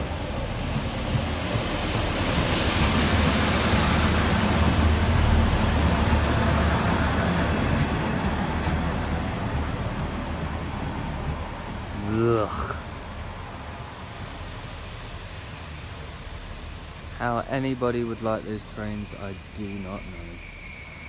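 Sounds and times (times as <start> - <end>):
diesel train passing: 0.0 - 21.0
brief high squeal: 3.2 - 3.9, 18.7 - 21.0.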